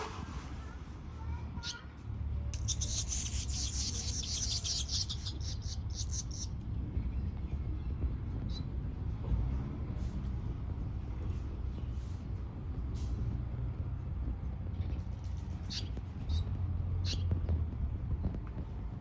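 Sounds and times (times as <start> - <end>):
steady low rumble: 0.6 - 19.0
birds chirping: 1.5 - 9.0, 14.6 - 18.4.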